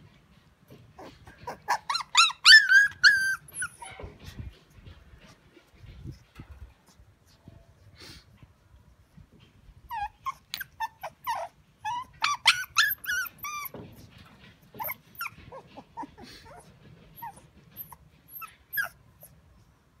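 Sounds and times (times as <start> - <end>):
dogs whining and yelping: 0.7 - 5.0, 9.8 - 19.5.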